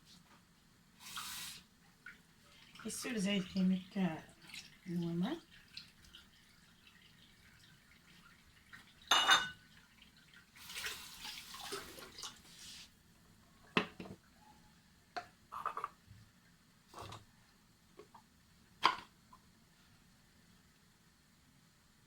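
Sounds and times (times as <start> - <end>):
metal pot clink: 9.1 - 9.6.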